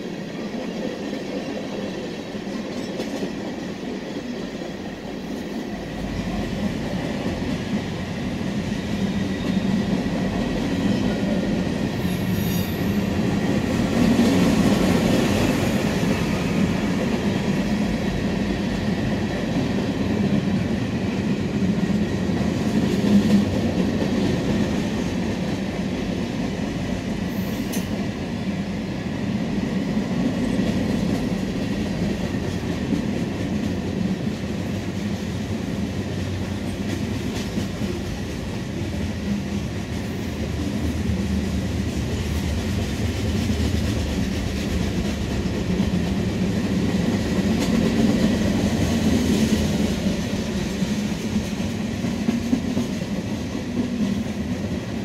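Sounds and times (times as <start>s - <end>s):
freight train wheels rumbling: 0.0s - 55.0s
high wheel squeal: 12.0s - 13.1s.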